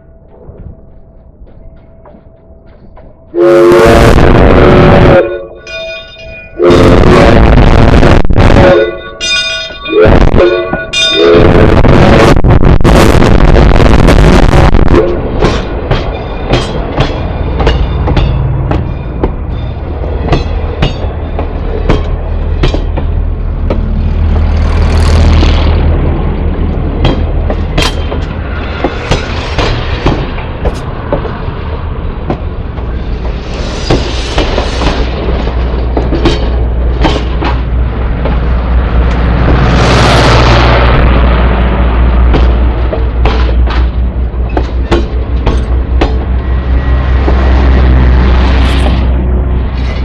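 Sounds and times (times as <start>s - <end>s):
train rolling rumble: 0.0s - 50.0s
wheels clicking over rail joints: 15.0s - 25.1s, 25.8s - 39.6s, 42.3s - 47.6s.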